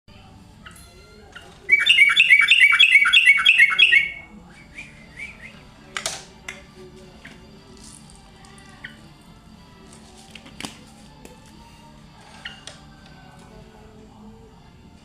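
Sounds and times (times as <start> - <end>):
bird chirping rapidly: 1.7 - 4.2.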